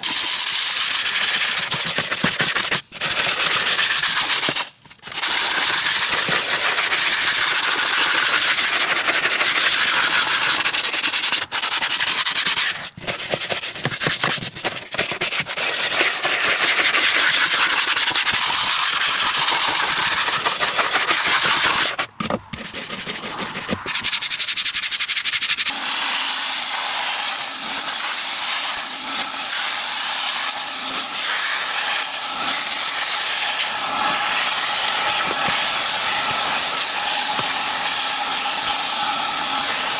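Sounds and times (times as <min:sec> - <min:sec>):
cleaning equipment hissing: 0:33.3 - 0:39.9.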